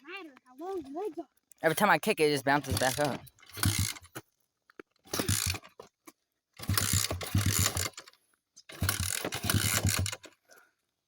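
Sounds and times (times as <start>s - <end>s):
kick-starter ratcheting: 2.5s - 4.2s, 5.1s - 5.9s, 6.6s - 10.4s
engine cranking over: 2.6s - 4.2s, 5.1s - 5.8s, 6.6s - 8.1s, 8.7s - 10.4s.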